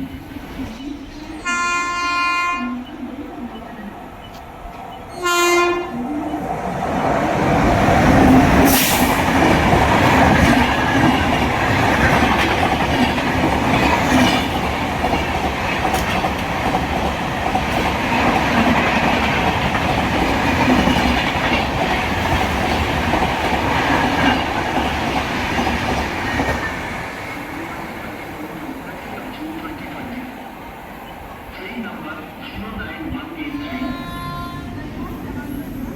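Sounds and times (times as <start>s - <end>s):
train wheels rumbling on rails: 0.0s - 35.9s
train horn blast: 1.4s - 2.8s, 5.1s - 6.0s
clickety-clack over rail joints: 6.4s - 30.3s.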